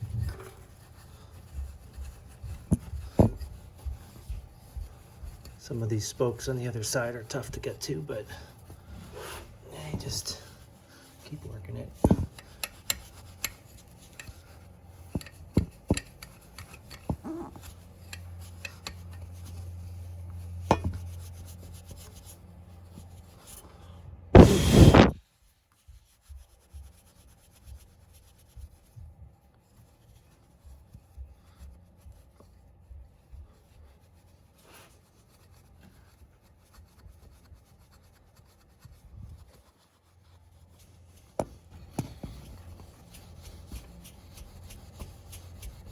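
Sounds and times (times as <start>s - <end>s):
loud rushing burst: 24.4s - 25.2s.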